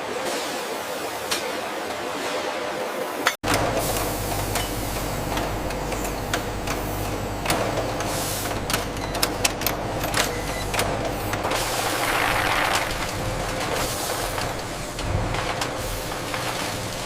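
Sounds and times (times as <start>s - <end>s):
machinery humming: 3.5s - 17.0s.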